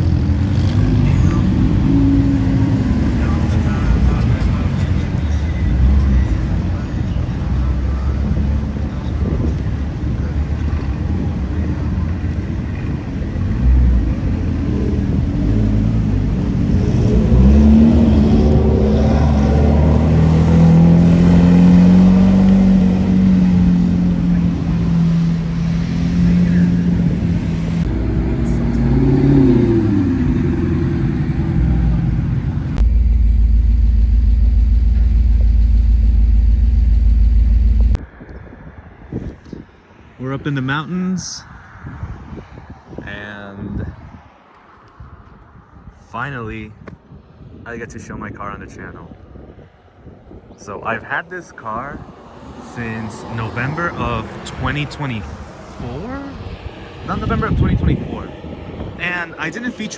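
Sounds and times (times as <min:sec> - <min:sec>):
car engine rumbling: 0:00.0 - 0:38.1, 0:52.4 - 0:59.9.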